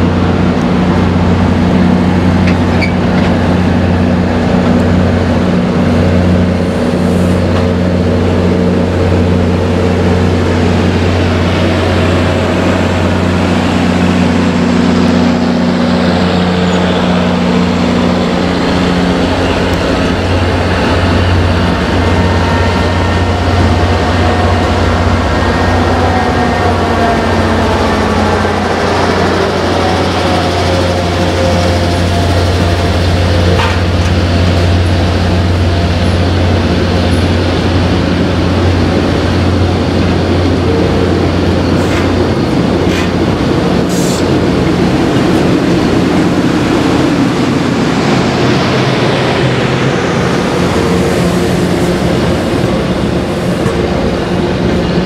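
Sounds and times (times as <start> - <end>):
coaches rolling over rails: 0.0 - 55.0
diesel locomotive engine drone: 0.0 - 55.0.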